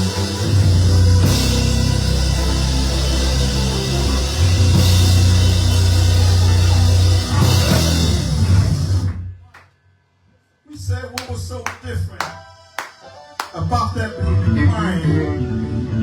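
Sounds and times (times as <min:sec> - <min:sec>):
loud band music: 0:00.0 - 0:09.2.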